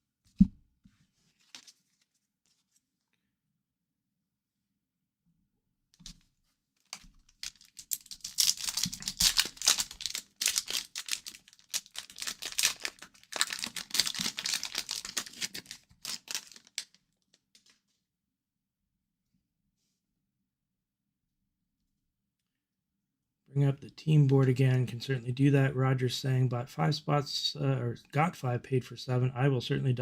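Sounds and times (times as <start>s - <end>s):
foil wrapper crinkling and tearing: 6.9s - 17.8s.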